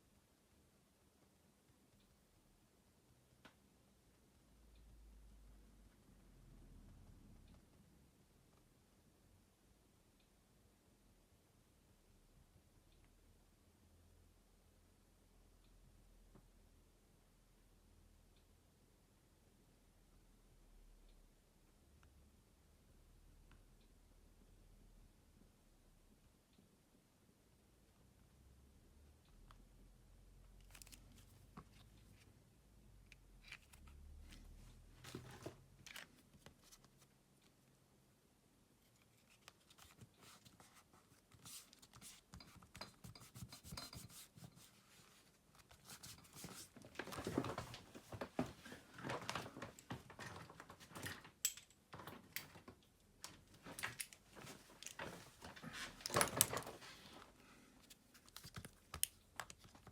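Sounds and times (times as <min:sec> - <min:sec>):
rubbing and scraping on work surface: 0:40.2 - 0:46.8.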